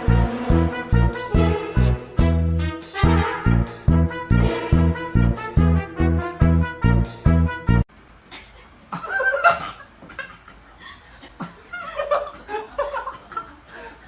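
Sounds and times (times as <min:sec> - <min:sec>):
music jingle: 0:00.0 - 0:07.8.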